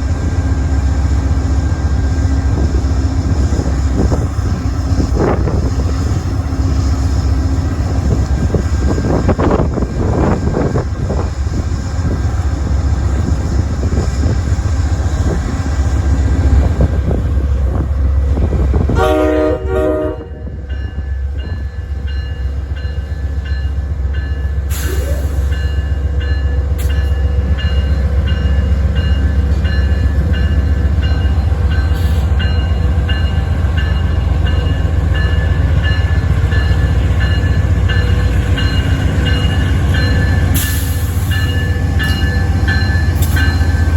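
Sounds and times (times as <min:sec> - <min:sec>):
diesel locomotive rumbling: 0:00.0 - 0:43.9
locomotive horn blast: 0:18.9 - 0:20.6
locomotive bell ringing: 0:19.0 - 0:43.9.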